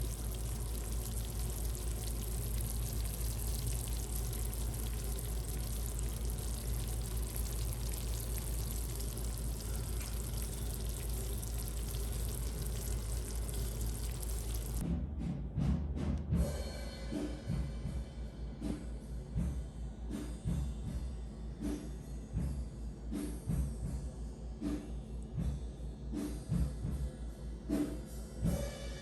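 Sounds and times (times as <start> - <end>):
food sizzling in a pan: 0.0 - 14.8
low hum: 0.0 - 14.8.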